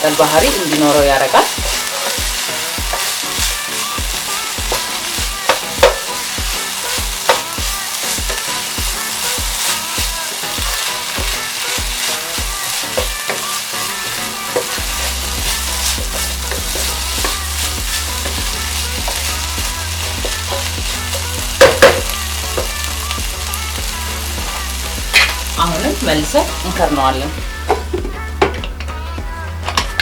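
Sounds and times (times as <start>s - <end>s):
vegetables sizzling in a pan: 0.0s - 30.0s
spoon scraping a pan: 0.1s - 22.8s.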